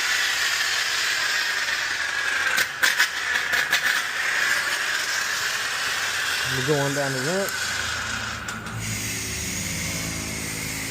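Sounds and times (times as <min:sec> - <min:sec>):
foaming brush spraying foam: 0:08.8 - 0:10.9.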